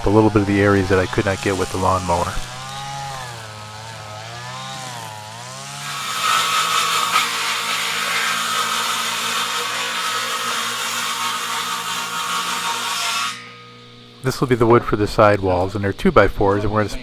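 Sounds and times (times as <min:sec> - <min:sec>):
string trimmer engine revving: 0:00.0 - 0:09.7.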